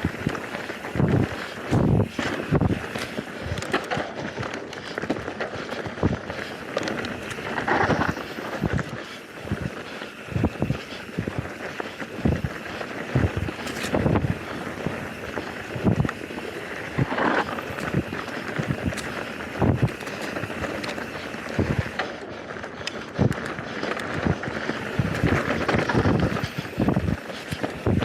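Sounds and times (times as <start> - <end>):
wind noise: 0.0 - 22.0, 22.7 - 28.0
bike knocking and rattling: 0.0 - 28.0
bike tyres rolling over dirt: 0.0 - 28.0.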